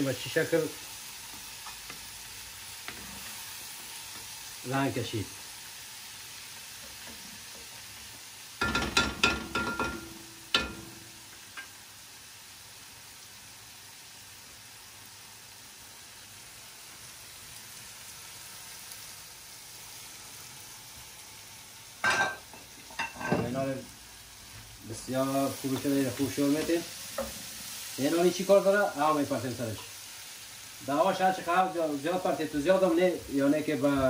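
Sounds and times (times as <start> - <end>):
food sizzling in a pan: 0.0 - 34.0
kitchenware knocking and clinking: 8.6 - 11.0, 22.0 - 23.6.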